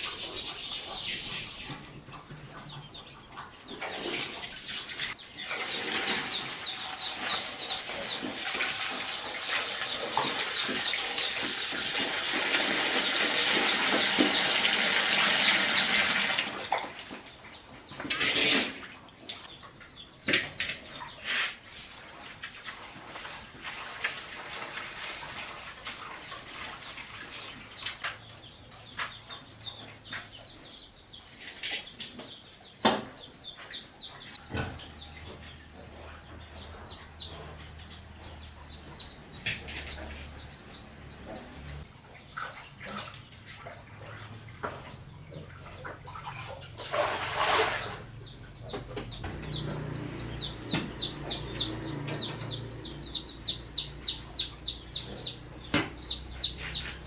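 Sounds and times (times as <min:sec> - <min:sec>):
chickens clucking: 0:00.0 - 0:22.2, 0:24.9 - 0:46.8, 0:47.5 - 0:57.0
water splashing: 0:03.9 - 0:17.3, 0:37.8 - 0:48.6.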